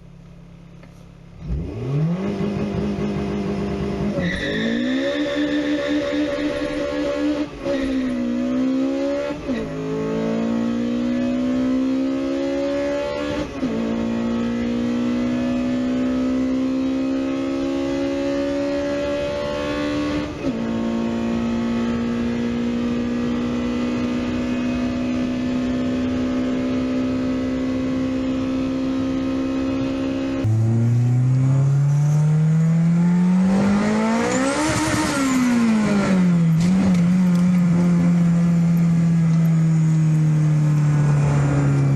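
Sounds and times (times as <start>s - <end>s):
car engine accelerating through gears: 0.0s - 41.9s
another engine revving: 1.4s - 4.2s, 29.0s - 38.1s.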